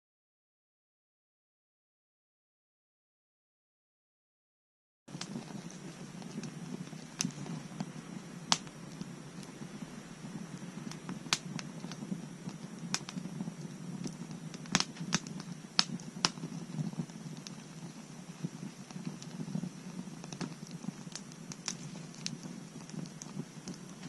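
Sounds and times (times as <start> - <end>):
bonfire pops and snaps: 5.1 - 24.0
low rush of fire: 5.1 - 24.0.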